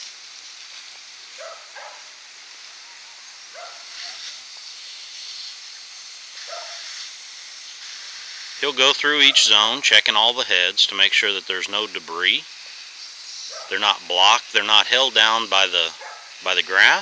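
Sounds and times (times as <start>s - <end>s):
lawn sprinklers hissing: 0.0s - 17.0s
dog barking: 1.4s - 2.1s, 3.5s - 4.3s, 6.4s - 6.9s, 13.5s - 13.8s, 15.9s - 16.4s.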